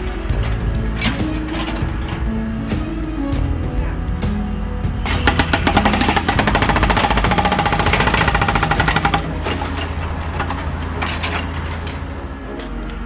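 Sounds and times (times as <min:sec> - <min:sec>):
hydraulic breaker hammer rattling: 0:05.1 - 0:12.1.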